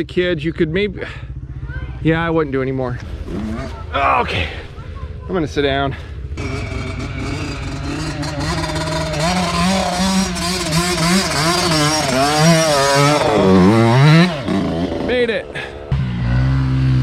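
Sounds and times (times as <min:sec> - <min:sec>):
dirt bike engine revving: 0:01.2 - 0:04.0, 0:06.3 - 0:17.0.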